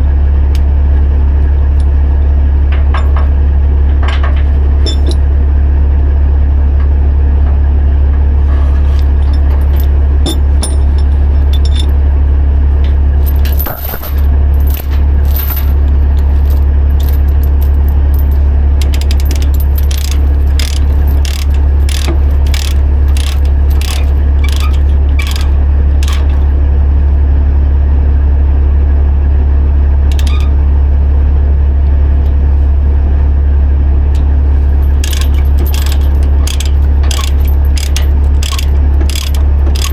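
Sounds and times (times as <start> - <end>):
steady low hum: 0.0 - 39.9
chain binder ratcheting clicks: 3.9 - 5.3, 8.8 - 12.1, 12.8 - 26.6, 30.1 - 30.5, 34.2 - 39.9
chains clinking: 4.8 - 5.3, 8.6 - 26.5, 34.6 - 39.9.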